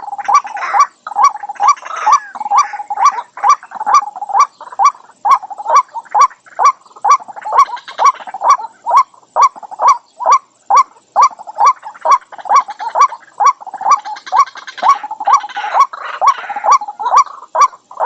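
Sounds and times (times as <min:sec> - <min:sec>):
bird croaking calls: 0:00.0 - 0:18.0.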